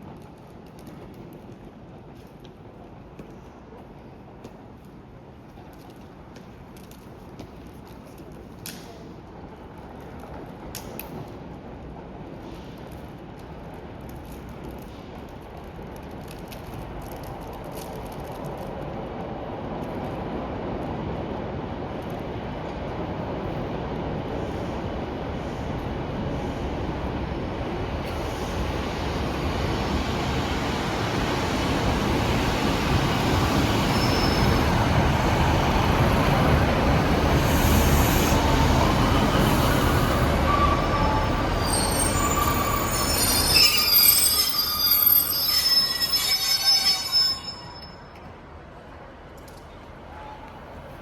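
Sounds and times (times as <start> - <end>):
train rumbling: 0.0 - 51.0
train brakes squealing: 33.5 - 35.0, 37.4 - 48.3.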